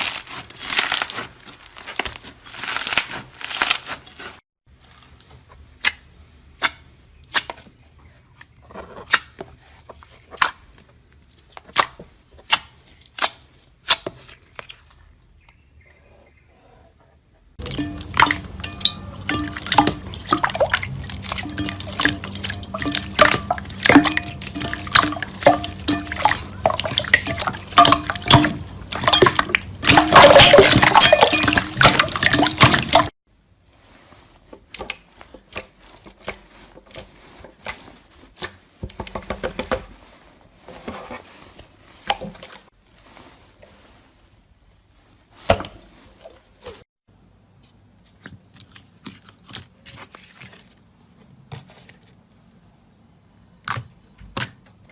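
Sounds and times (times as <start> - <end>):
slime squelching by hand: 0.0 - 4.4, 17.6 - 33.1.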